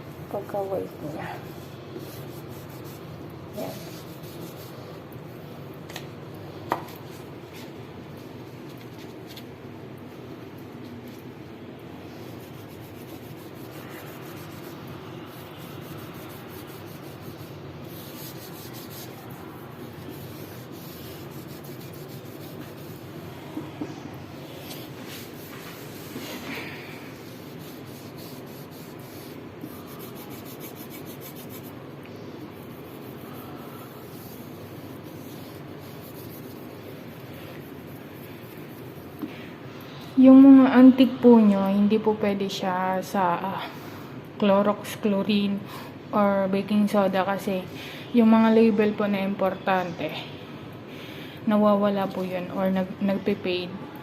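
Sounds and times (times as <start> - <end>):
hand rubbing a ceramic plate: 12.3 - 23.6.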